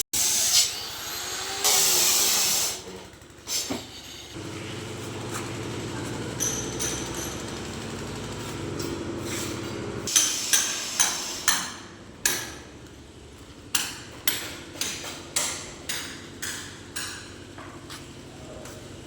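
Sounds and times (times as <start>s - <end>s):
engine hum: 4.4s - 10.1s.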